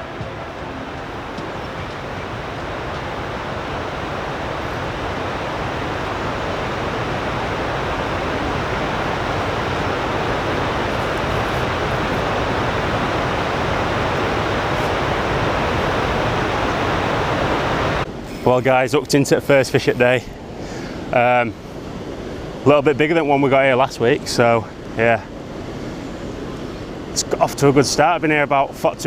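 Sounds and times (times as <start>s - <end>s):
steady rushing noise: 0.0s - 18.2s.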